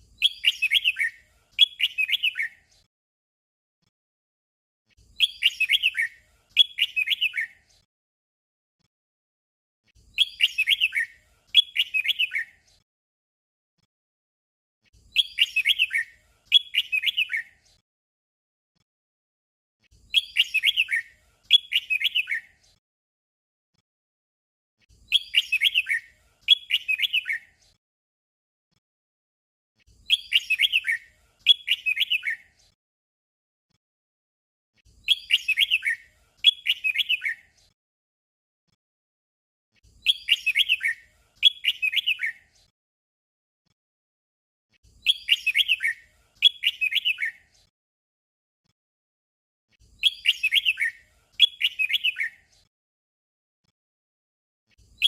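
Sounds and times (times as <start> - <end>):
bird singing warbled phrases: 0.0 - 2.8, 5.0 - 7.8, 10.0 - 12.8, 14.8 - 17.8, 19.9 - 22.7, 24.8 - 27.8, 29.9 - 32.7, 34.8 - 37.7, 39.8 - 42.7, 44.8 - 47.7, 49.8 - 52.7, 54.8 - 55.0.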